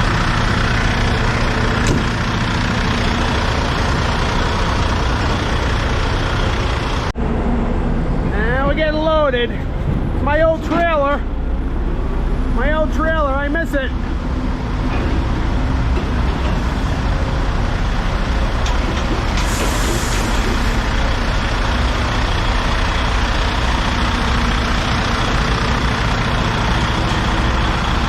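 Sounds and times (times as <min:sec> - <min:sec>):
truck diesel engine rumbling: 0:00.0 - 0:28.0
air hiss: 0:19.3 - 0:20.9.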